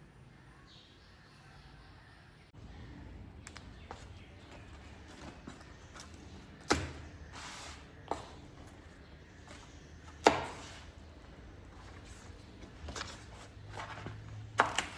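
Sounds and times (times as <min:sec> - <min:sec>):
low steady background noise: 0:00.0 - 0:14.9
sharp knocks from kitchen work: 0:06.0 - 0:07.5, 0:10.1 - 0:10.9, 0:14.2 - 0:14.9.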